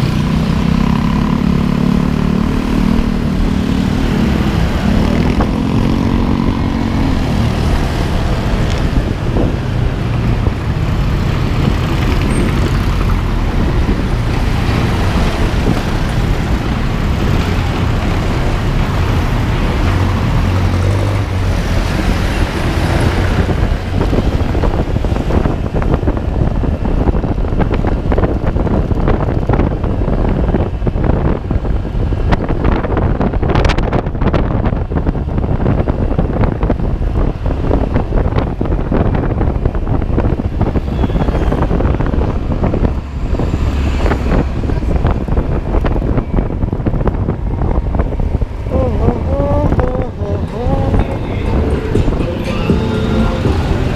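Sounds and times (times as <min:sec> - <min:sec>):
wind buffeting microphone: 0:00.0 - 0:53.9
steady low rumble: 0:41.7 - 0:53.9.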